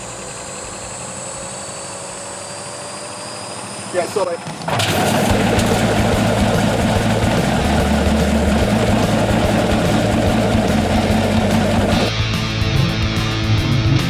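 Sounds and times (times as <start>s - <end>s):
washing machine drum spinning: 4.4s - 12.1s.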